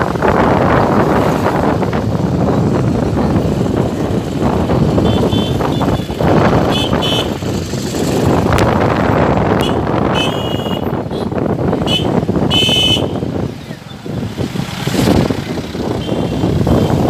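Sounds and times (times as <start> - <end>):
vehicle noise: 0.0 - 17.0.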